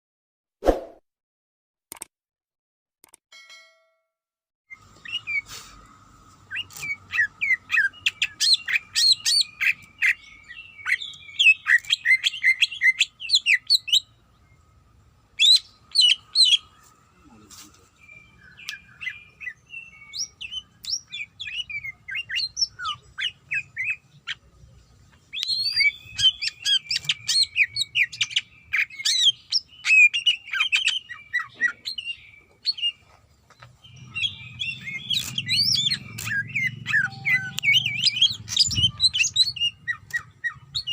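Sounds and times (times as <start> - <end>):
bird singing chirps and whistles: 4.7 - 5.5, 6.5 - 14.1, 15.4 - 16.8, 18.0 - 24.4, 25.3 - 33.0, 33.8 - 40.9.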